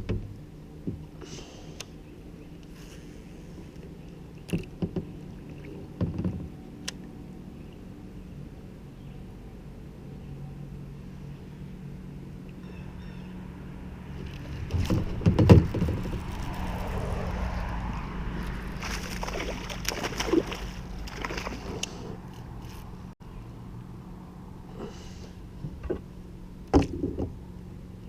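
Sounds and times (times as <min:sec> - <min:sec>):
water sloshing around a kayak: 0:02.0 - 0:06.7, 0:14.0 - 0:22.9.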